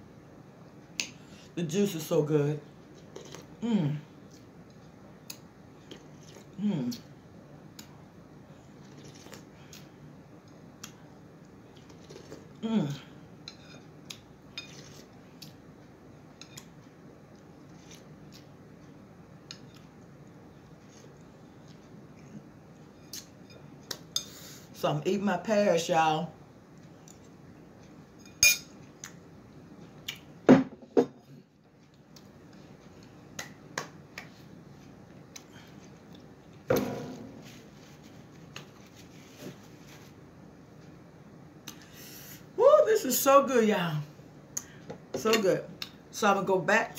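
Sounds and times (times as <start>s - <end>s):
cutlery clinking on a plate: 28.2s - 28.7s.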